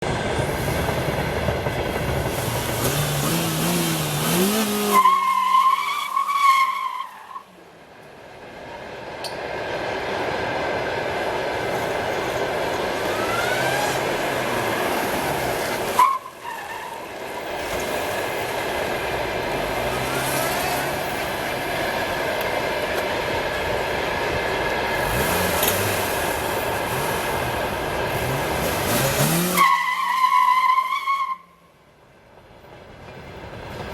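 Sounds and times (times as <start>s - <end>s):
car engine revving: 2.1s - 5.4s, 12.8s - 16.0s, 19.0s - 21.7s, 24.9s - 29.8s.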